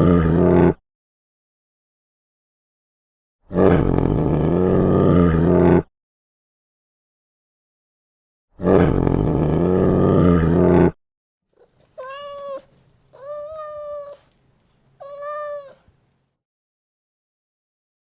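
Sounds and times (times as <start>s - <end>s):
cat meowing: 11.6s - 14.3s, 15.0s - 15.9s.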